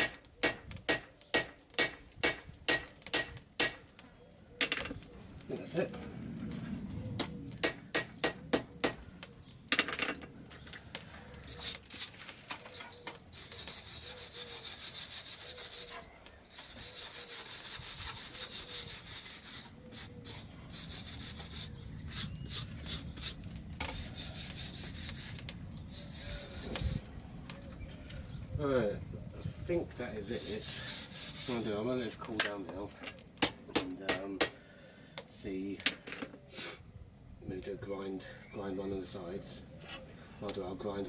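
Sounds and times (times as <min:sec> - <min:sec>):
rapid scratchy scraping: 0:11.4 - 0:27.1, 0:30.2 - 0:32.2.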